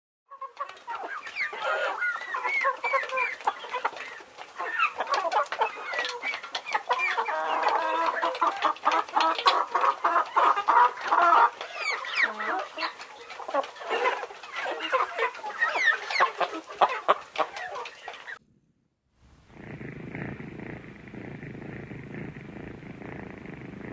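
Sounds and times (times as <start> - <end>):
chickens clucking and squawking: 0.3 - 18.4.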